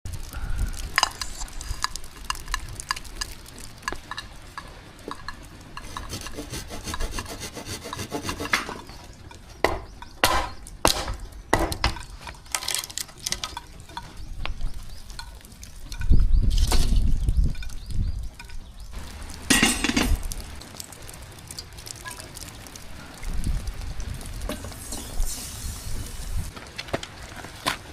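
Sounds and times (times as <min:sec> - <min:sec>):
rubbing and scraping: 0:05.2 - 0:09.1.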